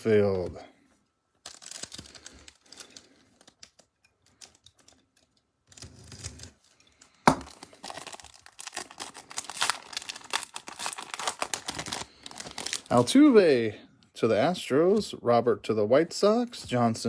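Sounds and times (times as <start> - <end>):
wrapper ripping: 1.4 - 3.5, 7.4 - 13.1
wrapper crinkling: 1.4 - 5.0, 7.0 - 13.2.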